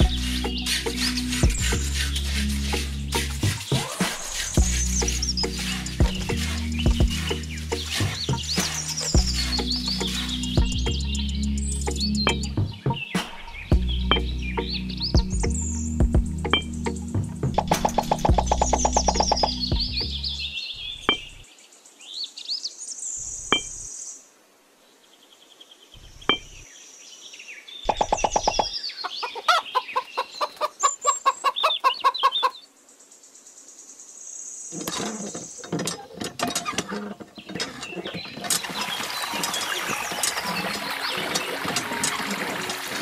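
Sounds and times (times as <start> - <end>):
small bird chirps: 0.0 - 21.5, 27.8 - 33.1
chicken clucking: 27.9 - 32.6.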